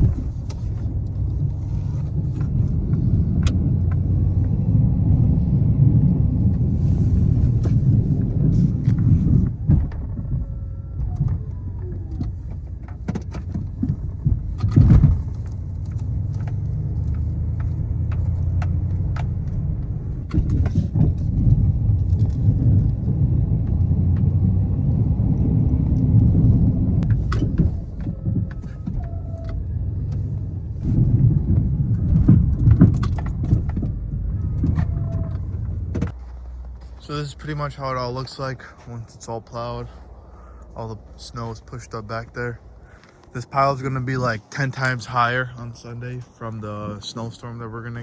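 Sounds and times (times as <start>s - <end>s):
snow plow knocks and rattles: 0.0s - 5.4s, 6.0s - 24.5s, 26.0s - 38.9s
truck engine rumble: 0.0s - 48.0s.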